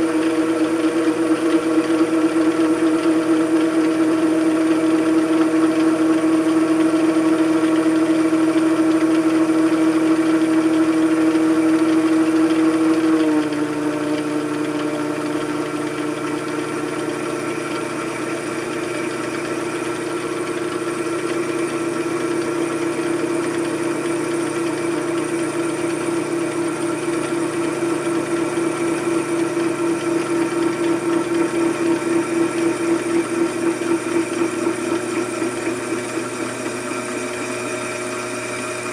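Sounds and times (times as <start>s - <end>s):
machine tool motor humming: 0.0s - 38.9s.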